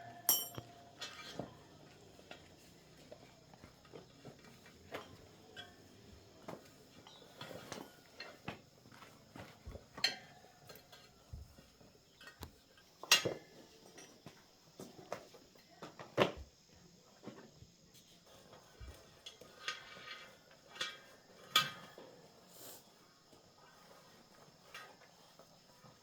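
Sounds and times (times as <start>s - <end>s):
metal objects clinking: 0.0s - 1.4s.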